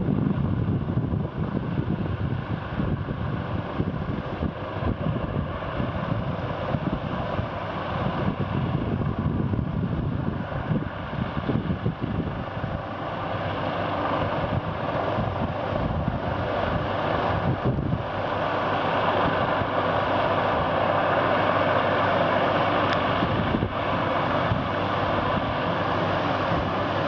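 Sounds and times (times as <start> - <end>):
helicopter engine and rotor: 0.0 - 27.0
wind buffeting microphone: 0.0 - 27.0.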